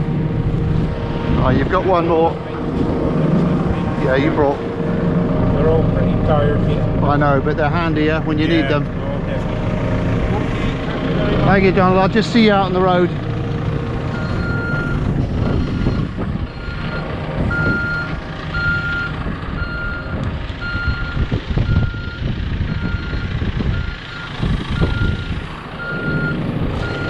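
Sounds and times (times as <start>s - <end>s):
vehicle engine running: 0.0s - 27.0s
reversing alarm beeping: 14.1s - 27.0s.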